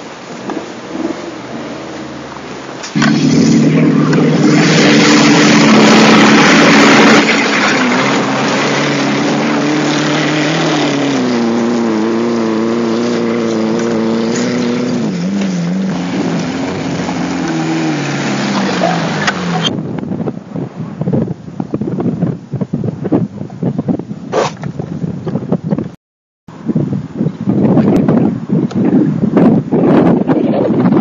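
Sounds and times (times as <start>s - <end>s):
loud rushing noise: 0.0s - 19.8s
car engine running under load: 0.0s - 22.4s.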